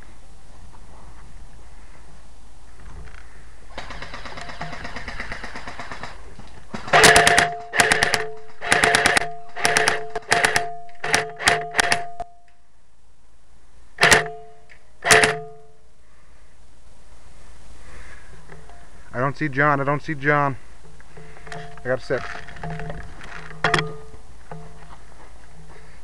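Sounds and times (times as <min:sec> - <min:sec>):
airsoft rifle firing bursts: 0:03.7 - 0:12.2, 0:14.0 - 0:15.7.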